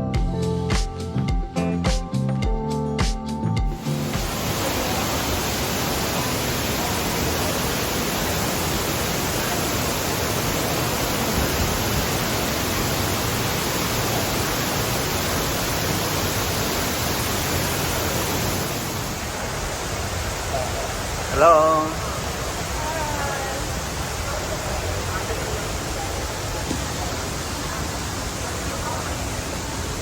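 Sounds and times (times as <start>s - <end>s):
loud rushing noise: 3.7s - 20.3s.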